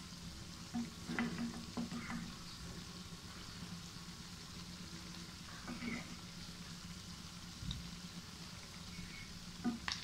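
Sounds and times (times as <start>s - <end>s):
donuts sizzling in oil: 0.0s - 10.0s
wooden spatula knocking in pan: 0.8s - 2.3s.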